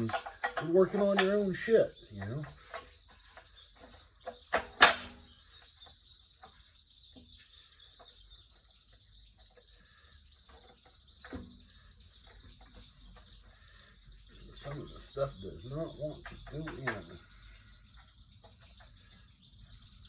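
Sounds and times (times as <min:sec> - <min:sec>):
metal parts knocking: 0:00.0 - 0:02.9.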